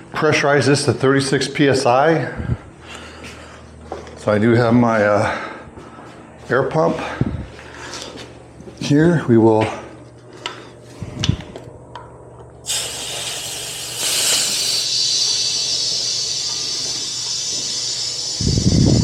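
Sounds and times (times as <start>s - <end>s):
air hissing into tire valve: 12.6s - 19.0s.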